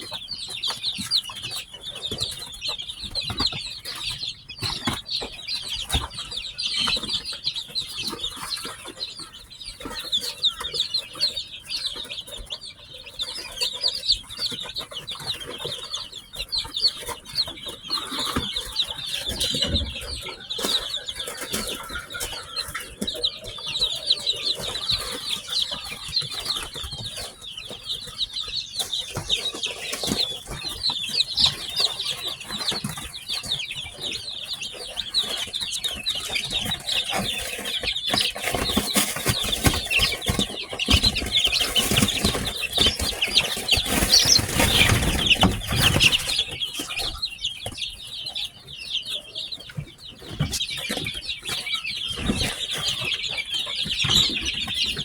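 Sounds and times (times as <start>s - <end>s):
chicks peeping: 0.0s - 55.0s
rustling and knocking: 36.4s - 46.9s.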